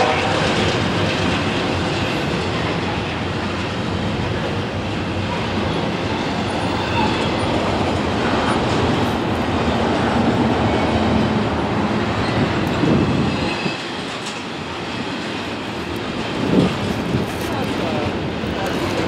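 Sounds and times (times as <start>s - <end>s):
train wheels rumbling on rail: 0.0s - 19.0s
wheels clicking over rail joints: 12.0s - 19.0s.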